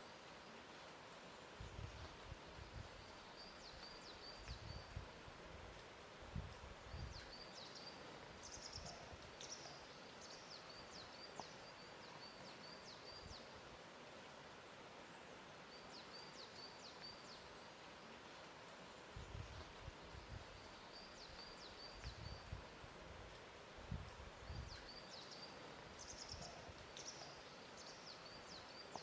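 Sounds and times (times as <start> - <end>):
steady hiss: 0.0 - 29.0.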